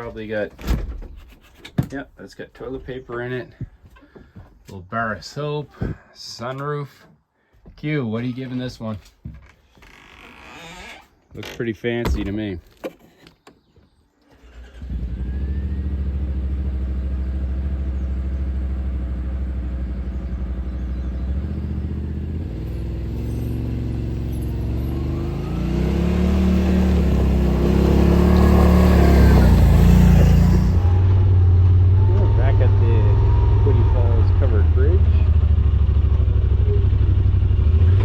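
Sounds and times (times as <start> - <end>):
utility vehicle engine running: 14.8 - 38.0.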